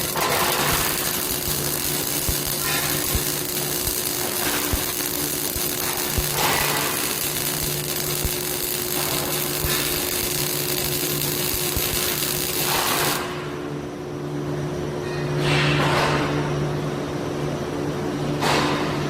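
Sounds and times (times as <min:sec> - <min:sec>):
welding machine humming: 0:00.0 - 0:13.8.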